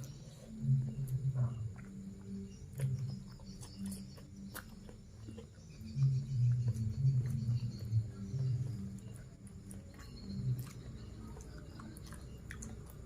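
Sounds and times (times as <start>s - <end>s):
chewing with smacking mouth noises: 0.0s - 13.0s.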